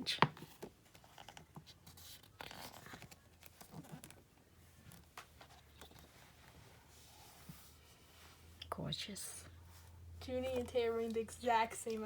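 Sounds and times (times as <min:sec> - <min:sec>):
paper rustling: 0:00.2 - 0:07.8.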